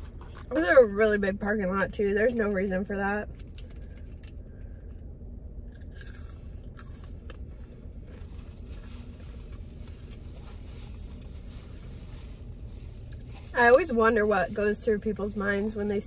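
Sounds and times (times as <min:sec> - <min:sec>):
low car cabin hum: 0:00.0 - 0:16.0
crunchy chewing: 0:05.7 - 0:07.5.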